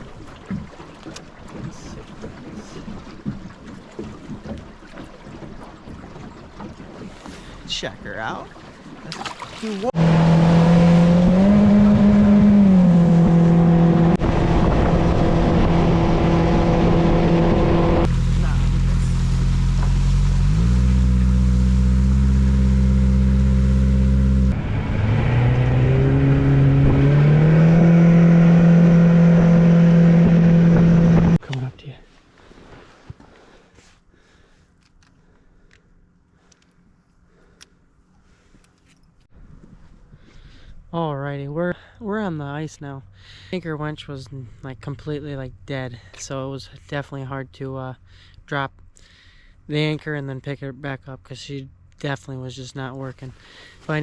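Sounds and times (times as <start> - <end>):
outboard motor running: 0.0 - 31.4
engine climbing in pitch: 10.0 - 31.4
wind rumbling on microphone: 11.2 - 20.0, 24.5 - 31.4, 39.3 - 40.9.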